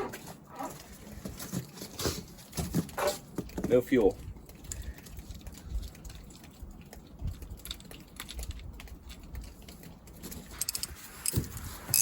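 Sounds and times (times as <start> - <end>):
small metal parts clicking: 10.5 - 12.0.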